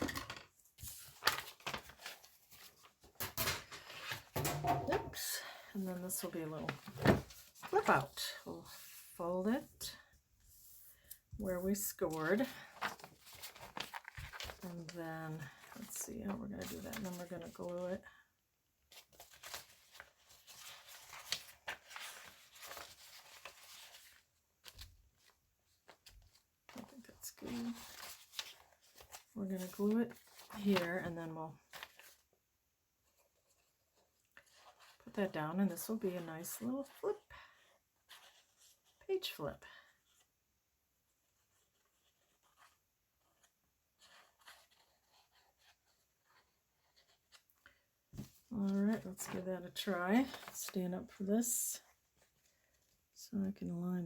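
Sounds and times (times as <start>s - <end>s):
paper rustling and tapping: 0.1s - 5.1s, 12.4s - 16.0s, 48.1s - 49.4s
paper rustling and crinkling: 0.5s - 4.8s, 5.4s - 9.2s, 10.5s - 17.9s, 18.9s - 32.4s, 33.0s - 37.0s, 41.1s - 51.2s.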